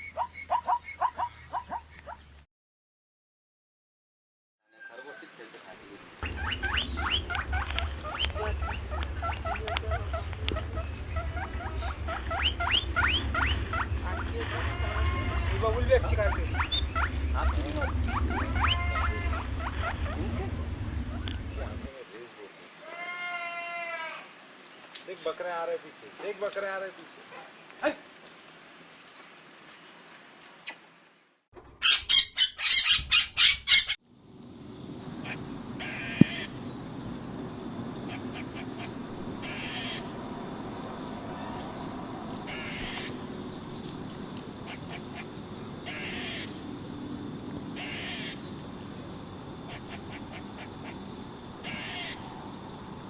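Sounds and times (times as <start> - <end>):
small animals squeaking: 6.2 - 21.9, 31.7 - 34.0, 38.0 - 40.1, 42.5 - 43.2, 44.6 - 46.5, 47.8 - 48.4, 49.7 - 51.0, 51.6 - 52.2
steady low hum: 6.2 - 21.9, 34.1 - 53.0
bird squawking harshly: 6.3 - 21.8, 31.8 - 34.0, 38.1 - 40.0, 42.5 - 43.2, 45.9 - 46.5, 47.8 - 48.4, 49.7 - 51.0, 51.6 - 52.2.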